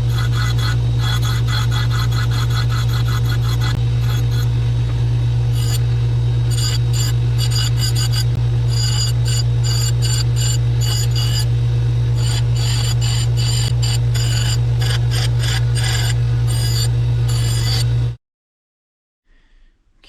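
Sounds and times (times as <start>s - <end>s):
blade rasping on grinder: 0.0s - 4.6s, 5.4s - 18.0s
powered grinder running: 0.0s - 18.2s.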